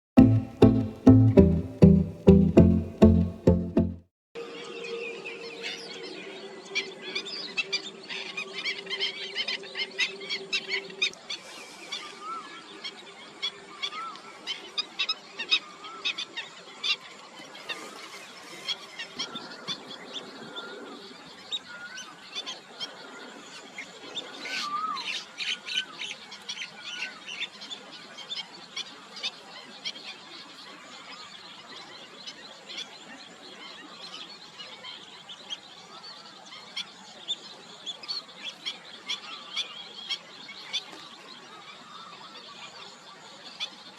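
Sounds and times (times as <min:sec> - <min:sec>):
birds chirping: 0:00.2 - 0:14.6.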